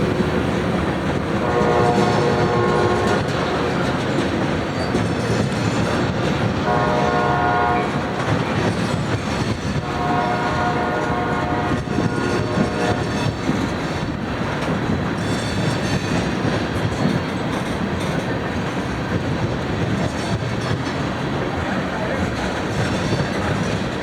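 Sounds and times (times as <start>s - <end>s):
train wheels rumbling on rails: 0.0s - 24.0s
locomotive air horn: 1.3s - 4.0s, 6.6s - 8.4s, 9.8s - 13.4s.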